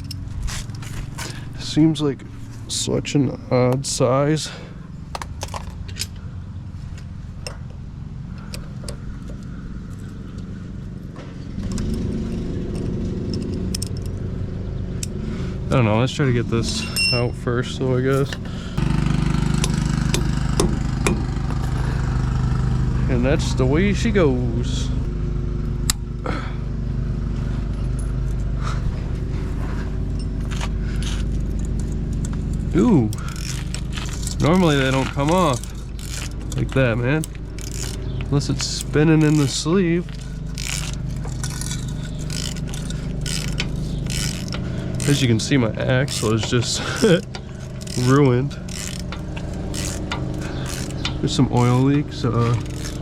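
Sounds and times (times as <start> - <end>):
lawn mower engine running: 6.5 - 53.0
metallic clinks of hand tools: 16.7 - 17.4, 33.0 - 53.0.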